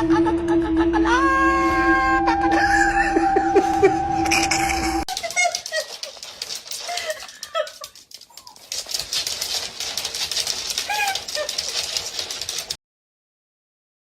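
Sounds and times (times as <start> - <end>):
scratchy rustling: 5.1 - 12.8.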